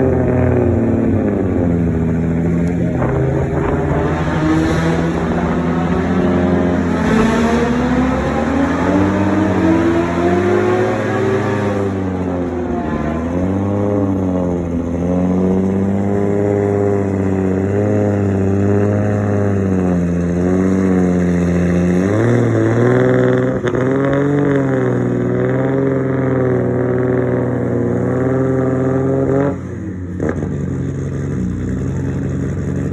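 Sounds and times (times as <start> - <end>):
car engine at low revs: 0.0 - 32.9.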